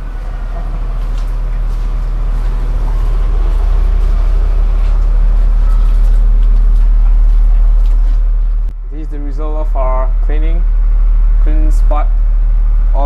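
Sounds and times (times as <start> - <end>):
motorcycle engine idling: 0.0 - 8.7.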